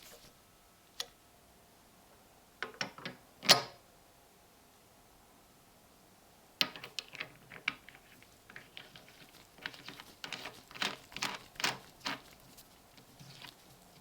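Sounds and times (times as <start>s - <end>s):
small metal parts clicking: 6.6s - 12.4s.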